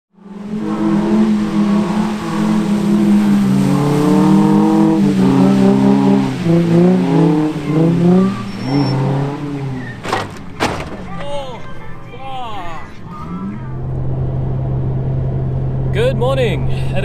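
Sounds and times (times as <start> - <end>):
car engine revving hard: 0.1 - 10.2.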